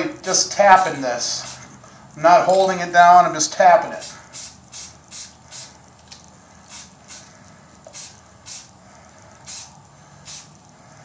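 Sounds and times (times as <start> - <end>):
spray paint can hissing: 1.4 - 1.8, 4.0 - 8.8, 9.4 - 10.7.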